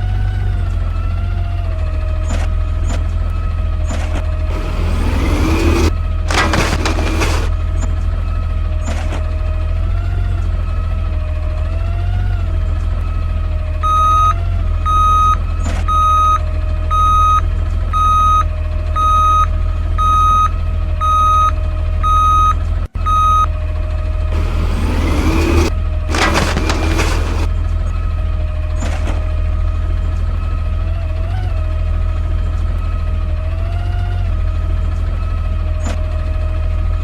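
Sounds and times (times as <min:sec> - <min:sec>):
garbage truck engine rumble: 0:02.6 - 0:11.8, 0:23.1 - 0:32.8
wavering engine whine: 0:04.4 - 0:07.6, 0:24.3 - 0:27.5
backup alarm beeping: 0:04.5 - 0:07.5, 0:13.8 - 0:17.4, 0:18.0 - 0:18.4, 0:19.0 - 0:22.5, 0:23.1 - 0:23.5, 0:24.4 - 0:27.5.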